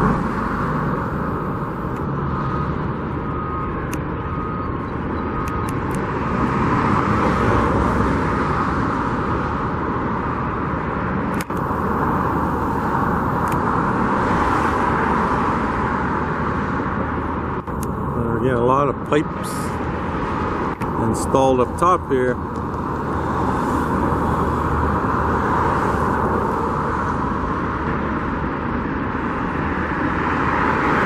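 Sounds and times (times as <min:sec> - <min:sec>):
traffic noise: 0:00.0 - 0:31.0.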